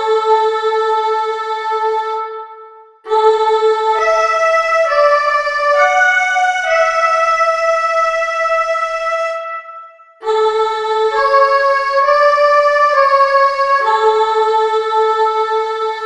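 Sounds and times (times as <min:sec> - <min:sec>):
electronic keyboard melody: 0:04.0 - 0:10.1, 0:11.1 - 0:14.7.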